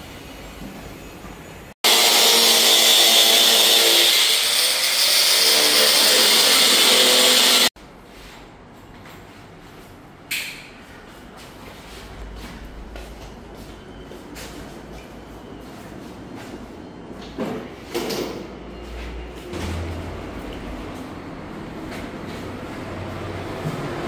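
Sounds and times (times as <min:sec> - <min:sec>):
power tool running: 0:01.8 - 0:07.7.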